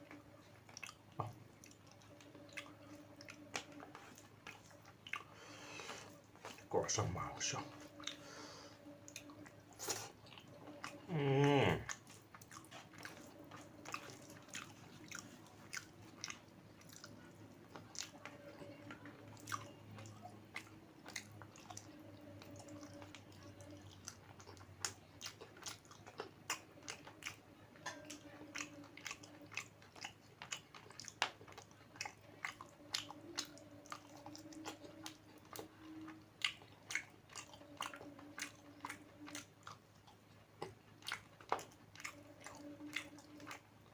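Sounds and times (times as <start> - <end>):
person chewing food: 0.0 - 43.9
person humming hmm: 10.9 - 12.0.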